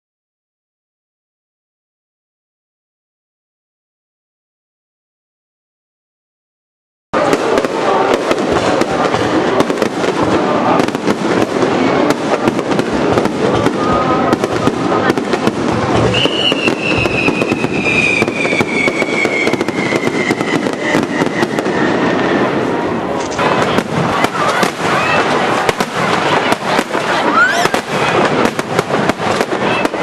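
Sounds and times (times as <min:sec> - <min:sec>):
fireworks crackling and popping: 0:07.2 - 0:30.0
falling firework whistle: 0:13.5 - 0:30.0.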